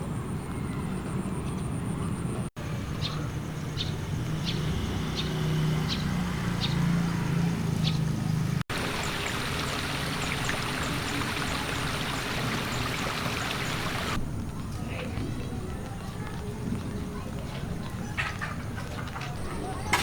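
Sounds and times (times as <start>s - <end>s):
water rushing in a channel: 8.7s - 14.2s.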